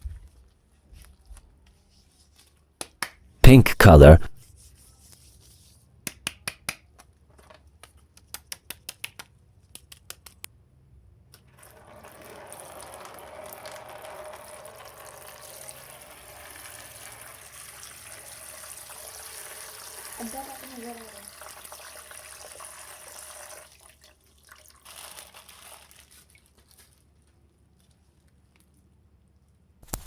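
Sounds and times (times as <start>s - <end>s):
water pouring from plastic bag: 11.6s - 27.9s.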